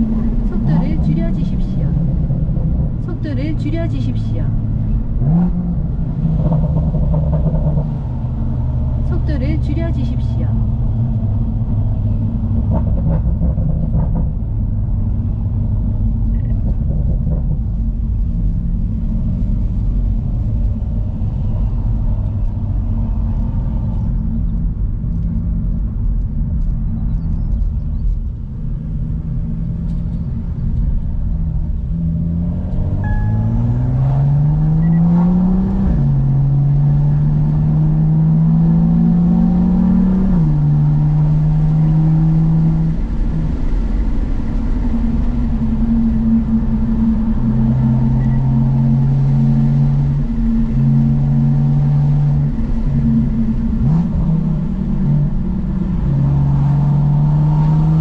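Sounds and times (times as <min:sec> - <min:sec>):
car engine revving: 0:00.0 - 0:14.9, 0:29.8 - 0:58.0.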